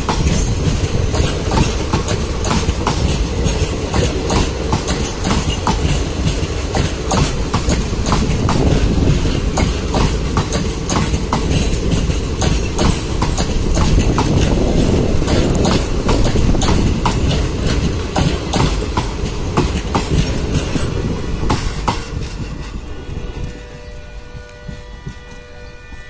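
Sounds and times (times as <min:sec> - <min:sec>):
train wheels clicking over rail joints: 0:00.0 - 0:26.0.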